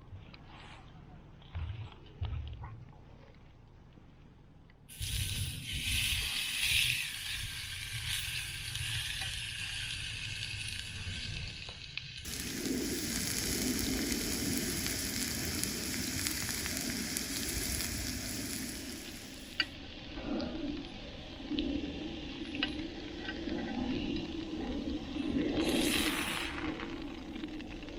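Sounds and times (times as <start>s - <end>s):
meat sizzling: 4.9s - 20.0s, 20.7s - 27.9s.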